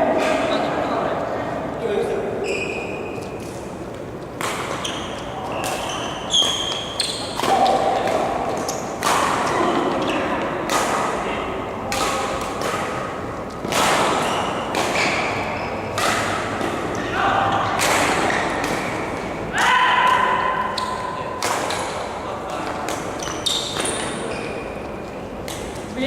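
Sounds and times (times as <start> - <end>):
shoe squeaks: 2.4 - 3.4, 4.7 - 7.4, 14.2 - 16.0, 23.2 - 24.9
rackets hitting shuttlecock: 3.1 - 25.9.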